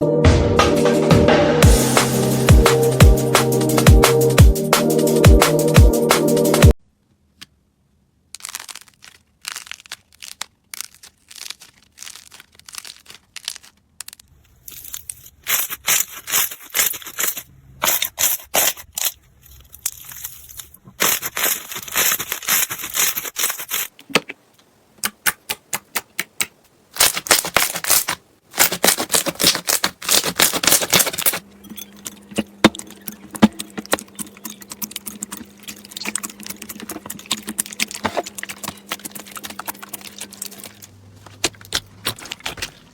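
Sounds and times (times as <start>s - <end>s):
slime squeezed by hands crackling: 8.4s - 17.4s, 25.4s - 31.4s.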